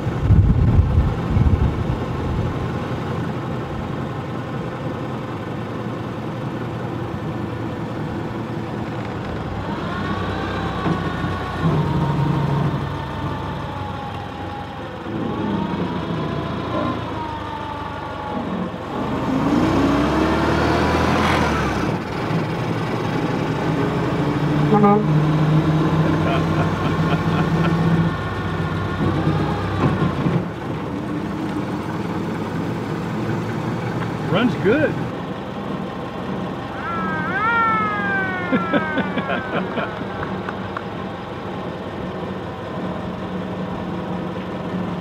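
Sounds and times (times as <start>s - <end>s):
old truck engine running: 0.0s - 45.0s
engine whine rising in pitch: 9.2s - 22.1s, 35.4s - 43.8s.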